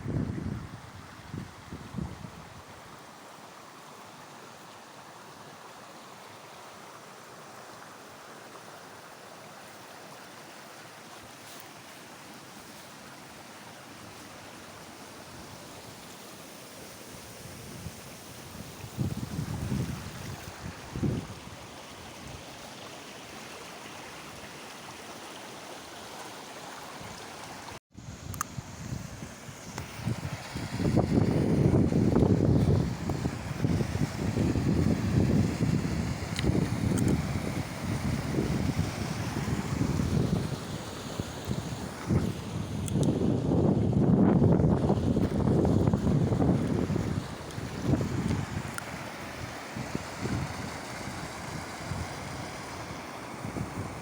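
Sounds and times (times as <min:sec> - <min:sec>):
flowing water rushing: 0:00.0 - 0:54.0
wind buffeting microphone: 0:18.7 - 0:21.5, 0:28.0 - 0:40.7, 0:41.5 - 0:48.8, 0:49.4 - 0:52.5.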